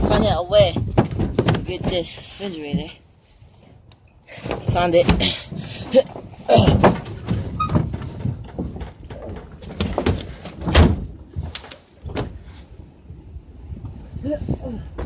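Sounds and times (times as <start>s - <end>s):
heavy thump: 0.0s - 3.0s, 4.4s - 12.6s
refrigerator knocking and scraping: 0.0s - 3.0s, 4.4s - 12.4s.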